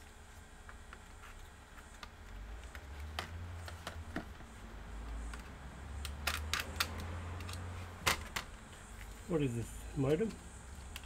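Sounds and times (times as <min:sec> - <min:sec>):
small parts clicking and tapping: 0:05.0 - 0:09.2, 0:10.0 - 0:11.0.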